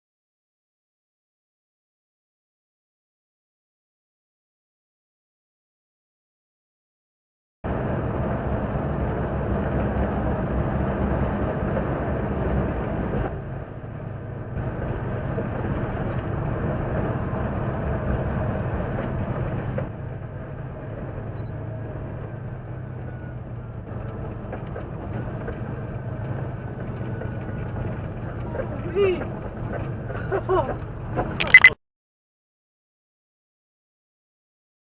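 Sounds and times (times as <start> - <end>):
vehicle engine and road noise: 7.6 - 31.8.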